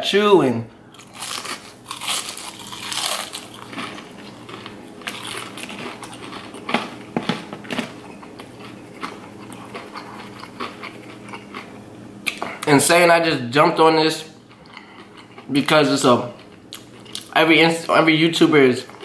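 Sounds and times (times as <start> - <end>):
crunchy chewing: 0.9 - 12.7, 14.4 - 18.0.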